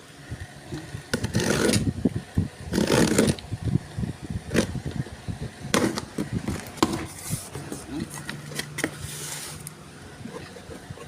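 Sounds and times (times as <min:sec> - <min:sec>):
packaging scraping and rustling: 0:01.2 - 0:01.9, 0:02.7 - 0:03.4, 0:05.8 - 0:09.7.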